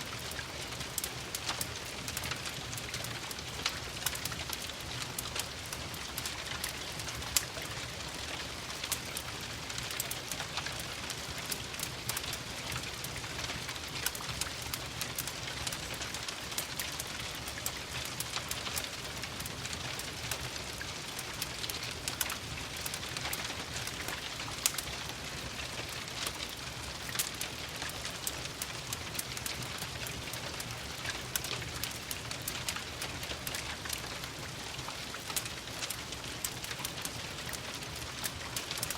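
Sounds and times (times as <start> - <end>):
rain pattering: 0.0 - 38.9
wood fire crackling and popping: 0.0 - 38.9.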